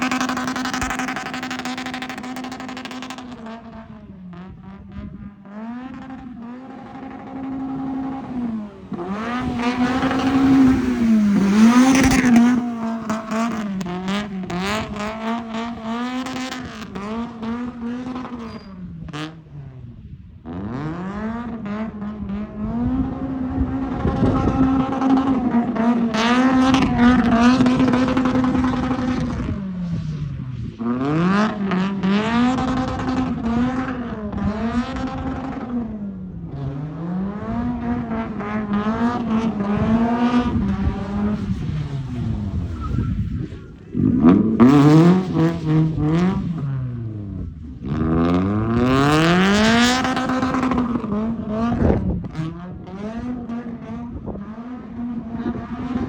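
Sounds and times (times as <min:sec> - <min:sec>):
car engine revving hard: 0:00.0 - 0:18.5, 0:20.5 - 0:29.6, 0:30.8 - 0:56.0.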